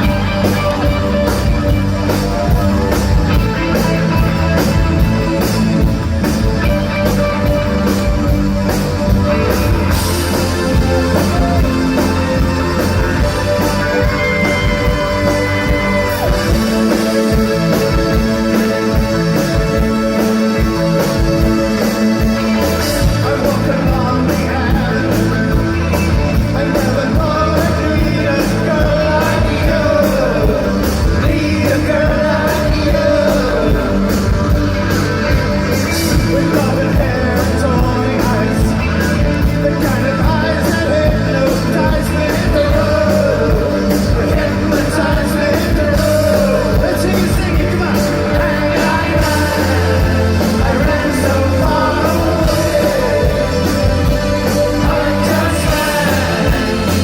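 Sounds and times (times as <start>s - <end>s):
live rock band playing: 0.0s - 57.0s
lead vocals singing: 9.2s - 57.0s.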